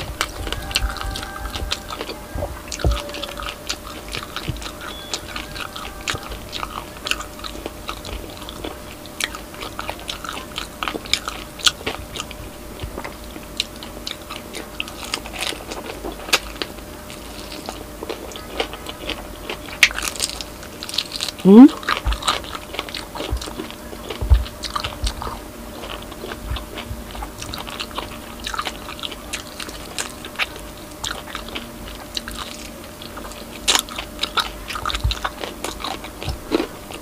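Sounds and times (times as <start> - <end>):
crunching crispy pork skin: 0.0 - 37.0.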